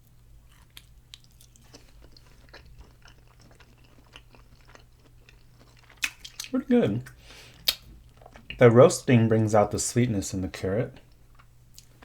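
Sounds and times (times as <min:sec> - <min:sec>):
person chewing crunchy carrot: 0:00.4 - 0:08.6.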